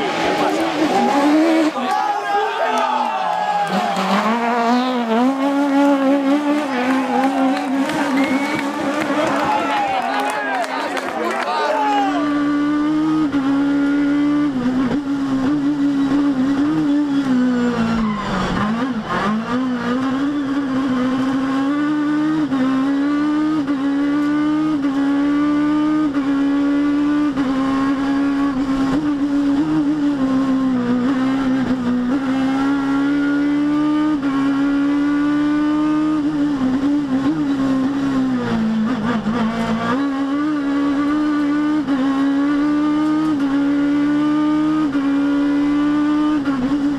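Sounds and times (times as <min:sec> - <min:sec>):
car engine running hard: 0:00.0 - 0:46.9.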